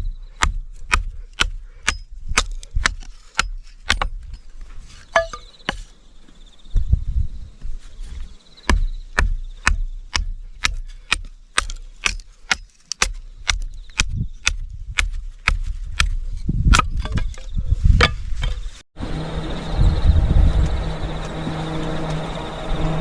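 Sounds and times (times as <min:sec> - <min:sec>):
low rumble: 0:19.0 - 0:23.0.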